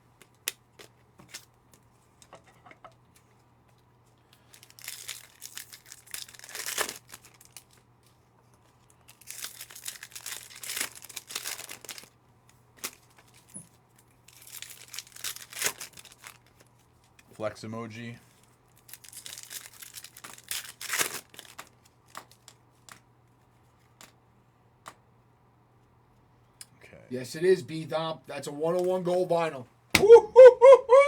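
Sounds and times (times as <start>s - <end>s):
card pack wrappers tearing and crinkling: 0.2s - 1.6s, 4.4s - 7.9s, 8.8s - 12.2s, 12.8s - 17.3s, 18.4s - 23.0s.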